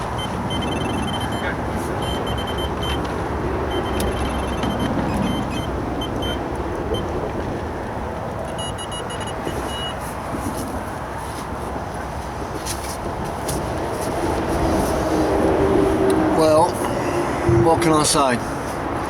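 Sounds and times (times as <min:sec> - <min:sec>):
rapid high-pitched electronic beeps: 0:00.0 - 0:03.0, 0:03.7 - 0:06.4
road traffic noise: 0:00.0 - 0:19.0.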